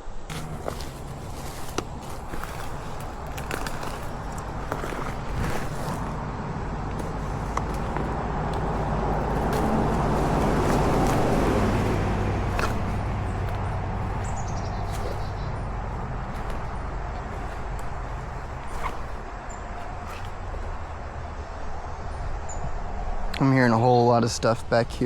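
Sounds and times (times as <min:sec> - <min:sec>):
vehicle passing on road: 0:00.3 - 0:22.1.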